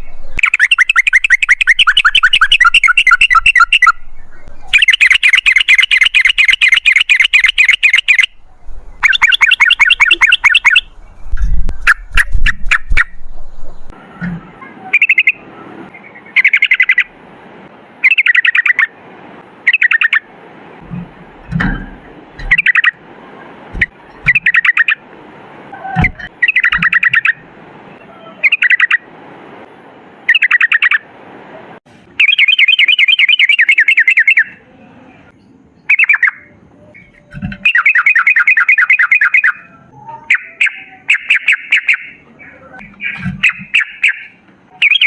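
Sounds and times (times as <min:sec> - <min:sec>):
bird chattering song: 0:00.0 - 0:14.0, 0:14.7 - 0:17.1, 0:18.0 - 0:18.9, 0:19.7 - 0:20.3, 0:22.4 - 0:23.0, 0:23.8 - 0:25.0, 0:25.8 - 0:27.4, 0:28.2 - 0:29.0, 0:30.3 - 0:31.0, 0:32.2 - 0:34.6, 0:35.4 - 0:45.0.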